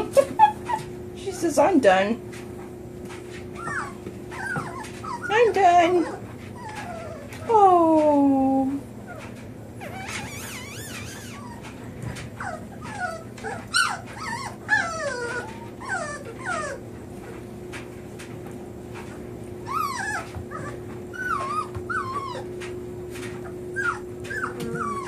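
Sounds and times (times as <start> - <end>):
puppies whimpering and crying: 0.0 - 1.8, 3.1 - 17.9, 19.0 - 25.0.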